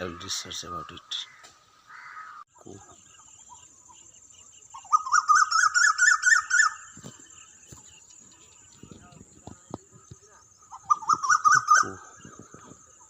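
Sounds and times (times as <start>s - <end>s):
bird calling repeated notes: 3.2s - 9.2s, 9.8s - 13.0s.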